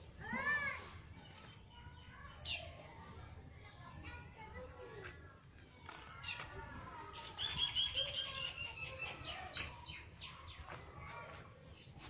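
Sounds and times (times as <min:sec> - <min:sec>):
small birds chirping: 0:00.6 - 0:12.0.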